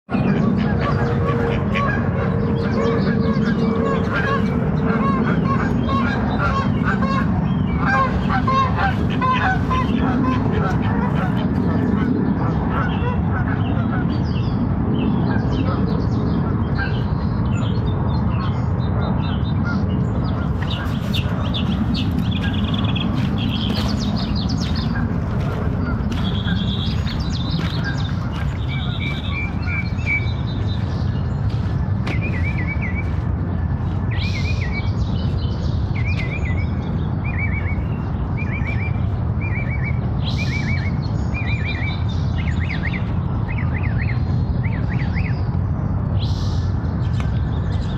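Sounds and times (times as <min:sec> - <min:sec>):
steady low rumble: 0:00.0 - 0:47.9
small birds chirping: 0:00.2 - 0:47.9.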